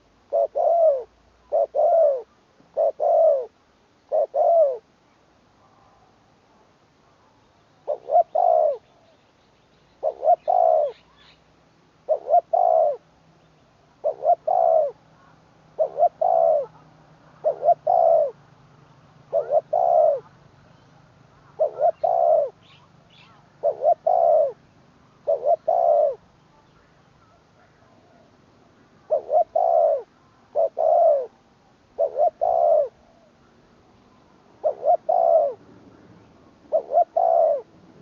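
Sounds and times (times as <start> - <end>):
dove cooing: 0.0 - 4.9, 7.8 - 9.2, 10.0 - 11.4, 12.0 - 13.1, 14.0 - 18.4, 19.2 - 20.4, 21.4 - 26.3, 29.0 - 33.4, 34.6 - 35.6, 36.7 - 37.7.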